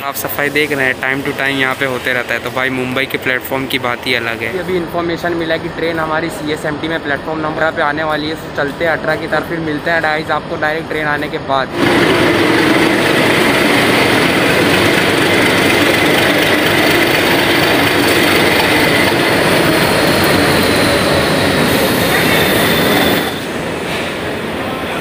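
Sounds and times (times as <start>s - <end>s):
quieter passing train: 0.0s - 25.0s
train running gear rumble: 11.7s - 24.4s
train wheels squealing: 18.2s - 24.1s.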